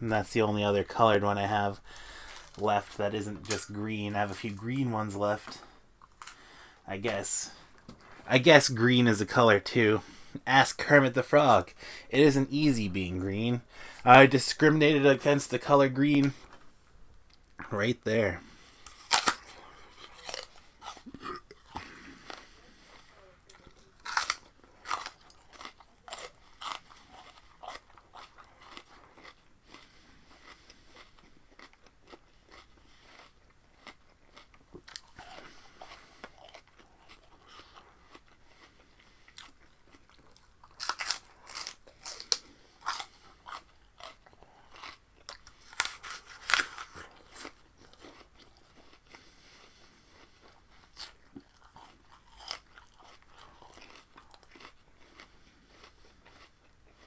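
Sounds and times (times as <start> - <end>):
crunching raw vegetables: 17.4 - 57.0.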